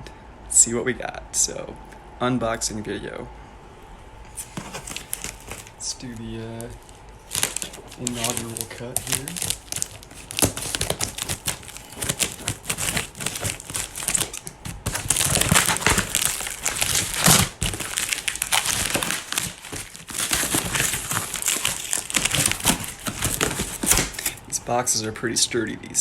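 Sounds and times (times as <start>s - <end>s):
cardboard box ripping open: 4.4s - 5.8s, 6.4s - 24.4s.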